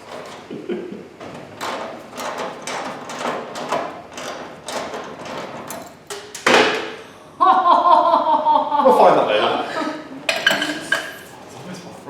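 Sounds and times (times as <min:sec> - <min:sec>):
tool clatter: 0:00.0 - 0:06.8, 0:10.3 - 0:11.4
tools scraping and knocking: 0:00.0 - 0:06.9, 0:10.3 - 0:11.4.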